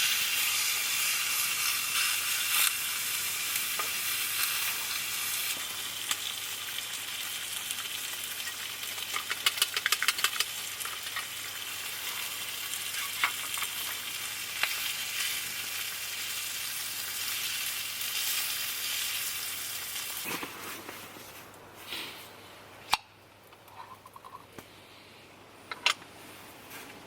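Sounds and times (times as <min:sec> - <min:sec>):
food sizzling in a pan: 0:00.0 - 0:20.3.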